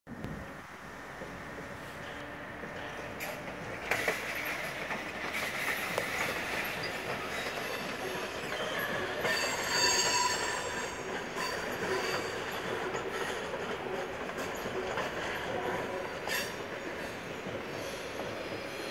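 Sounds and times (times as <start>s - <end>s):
train rolling on tracks: 0.1s - 18.9s
wheels clicking over rail joints: 2.6s - 18.3s
high wheel squeal: 5.4s - 13.5s, 14.4s - 18.9s.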